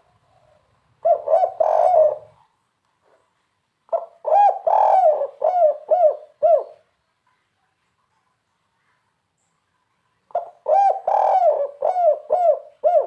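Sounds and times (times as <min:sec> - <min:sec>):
dove cooing: 0:00.0 - 0:02.5, 0:03.9 - 0:06.9, 0:10.3 - 0:13.0.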